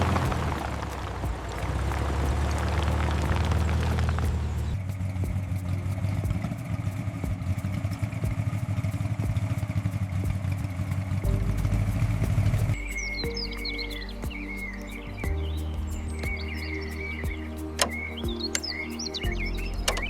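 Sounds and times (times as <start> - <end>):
car engine rumbling: 0.0 - 12.9
birds chirping: 10.7 - 20.0.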